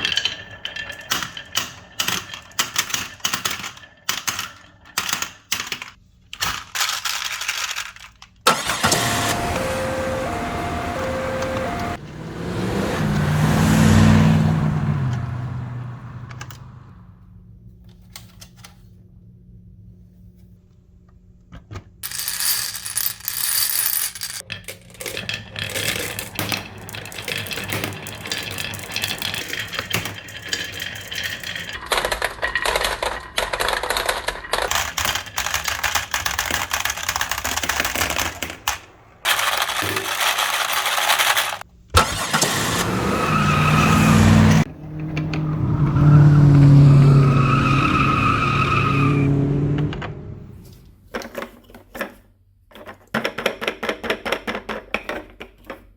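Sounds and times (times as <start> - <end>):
marbles clattering down wooden run: 0.0 - 5.3, 22.0 - 38.5, 39.3 - 41.6.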